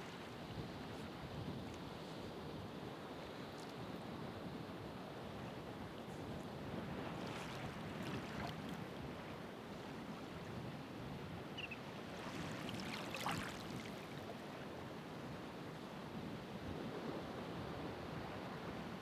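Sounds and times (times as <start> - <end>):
ocean waves on shore: 4.1 - 19.0.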